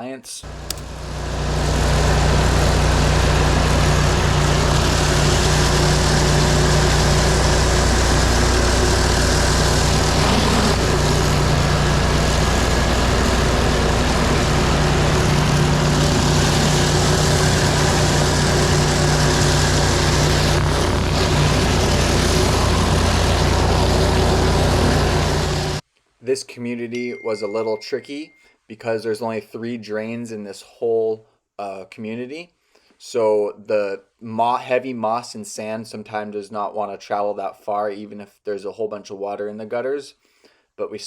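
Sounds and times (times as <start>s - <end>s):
pressure washer engine running: 0.5s - 25.8s
water spraying onto pavers: 0.6s - 25.8s.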